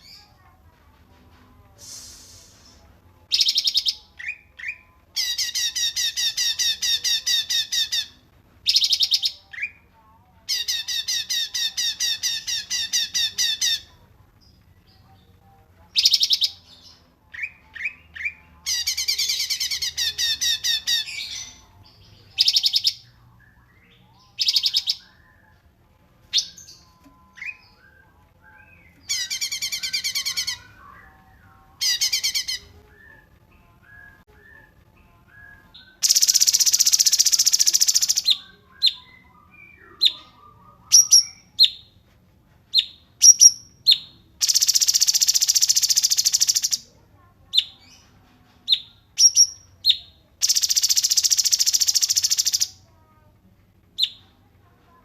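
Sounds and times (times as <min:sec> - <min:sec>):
bird chirps: 0:26.3 - 0:41.9, 0:42.8 - 0:46.9, 0:48.7 - 0:52.8.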